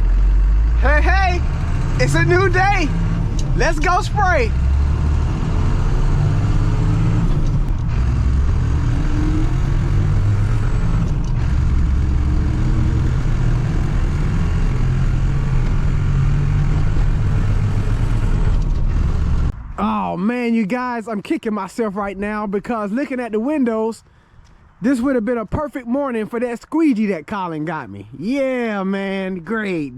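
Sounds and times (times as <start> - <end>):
tractor engine running: 0.0 - 19.9.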